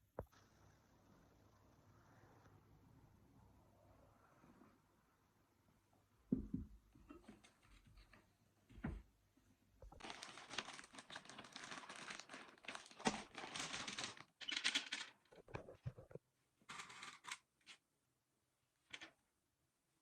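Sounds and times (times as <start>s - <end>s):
crinkling and tearing by hand: 10.0s - 15.2s.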